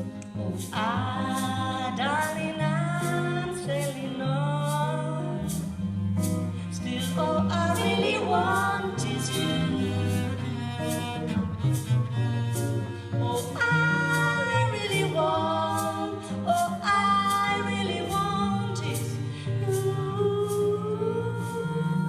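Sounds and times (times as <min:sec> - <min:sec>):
live band instrumental: 0:02.2 - 0:19.9.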